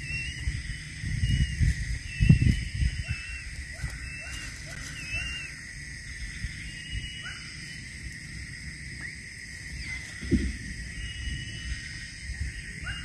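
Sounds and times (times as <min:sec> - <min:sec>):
short whistled bird calls: 0:00.0 - 0:05.5, 0:10.9 - 0:12.0
rising bird chirps: 0:00.0 - 0:08.0, 0:09.0 - 0:13.0
high insect drone: 0:00.0 - 0:13.0.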